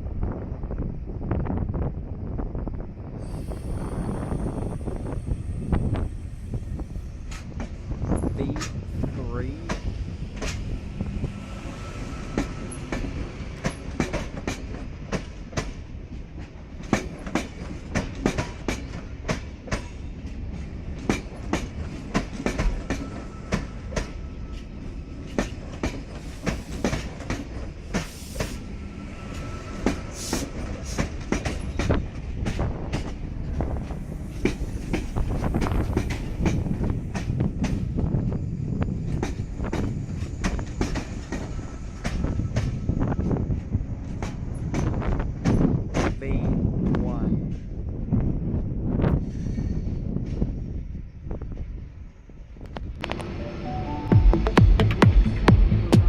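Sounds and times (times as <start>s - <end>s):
train low rumble: 0.0s - 56.0s
train wheels clicking over rail joints: 9.6s - 38.0s, 39.0s - 46.2s.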